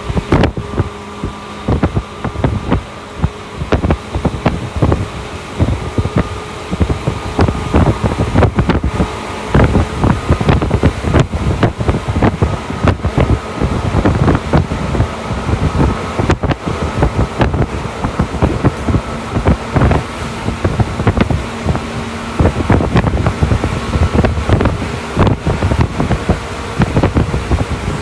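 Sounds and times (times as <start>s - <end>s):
traction motor hum: 0.0s - 28.0s.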